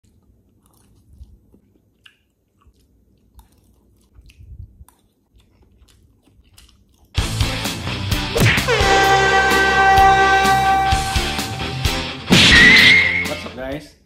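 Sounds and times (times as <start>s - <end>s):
person chewing noodles: 0.0s - 7.5s
biting into hotdog: 0.0s - 7.8s.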